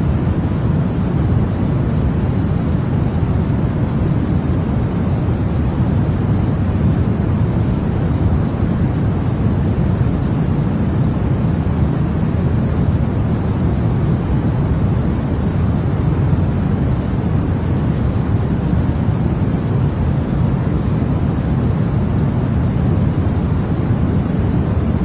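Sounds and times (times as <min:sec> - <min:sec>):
deep white noise hiss: 0:00.0 - 0:25.0.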